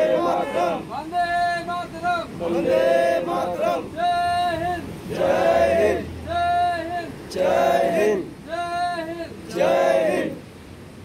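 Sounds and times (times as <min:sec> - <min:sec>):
group singing in unison: 0:00.0 - 0:00.8, 0:02.4 - 0:04.0, 0:04.7 - 0:06.6, 0:07.3 - 0:08.3, 0:09.4 - 0:10.4.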